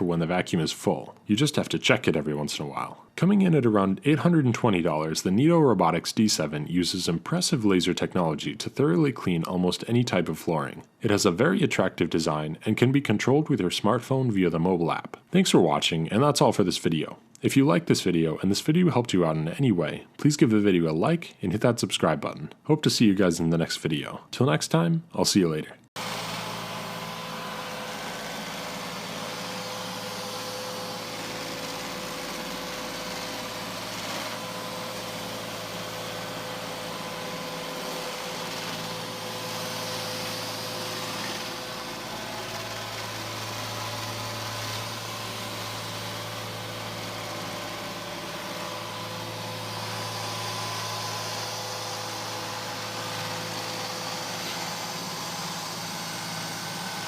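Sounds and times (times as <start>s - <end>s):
robot vacuum running: 26.0s - 57.0s.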